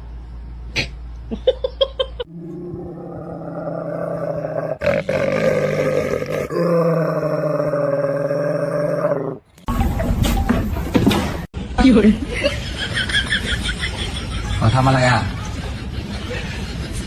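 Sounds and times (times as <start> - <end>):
pet animal growling: 2.3 - 9.5.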